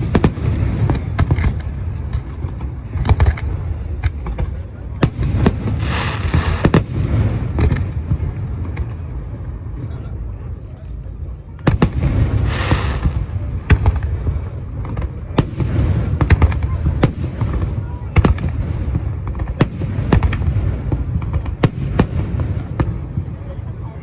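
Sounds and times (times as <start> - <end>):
fireworks crackle: 0.0 - 9.2, 11.6 - 23.8
fireworks bangs and cracks: 0.0 - 10.4, 11.5 - 24.0
low rumble of echoing booms: 11.6 - 23.8.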